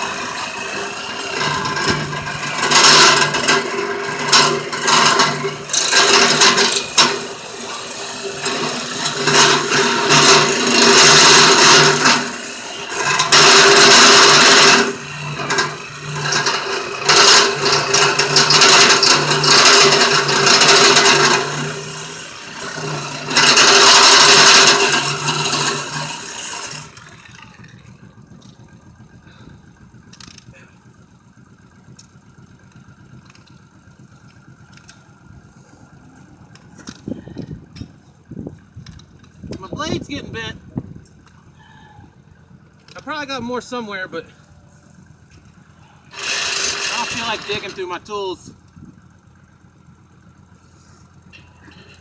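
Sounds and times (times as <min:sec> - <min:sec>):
reciprocating saw cutting metal: 0:00.0 - 0:28.1, 0:46.0 - 0:48.3.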